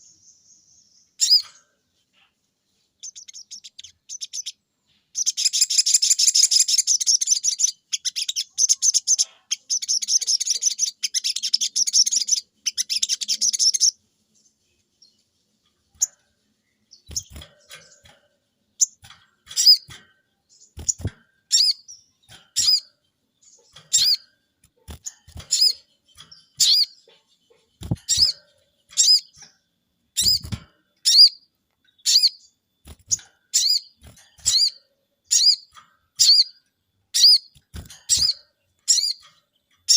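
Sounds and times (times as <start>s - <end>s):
bird chattering: 20.6s - 29.4s.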